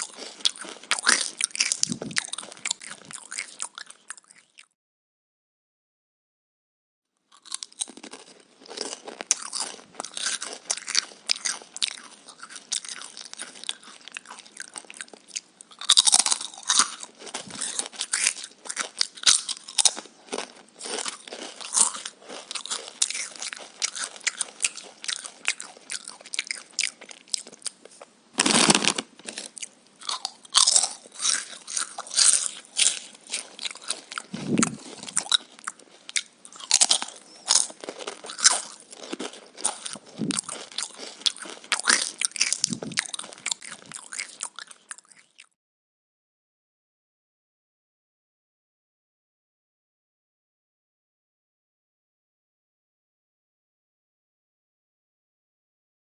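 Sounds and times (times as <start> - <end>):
crunching raw vegetables: 0.0 - 4.7, 7.3 - 45.5.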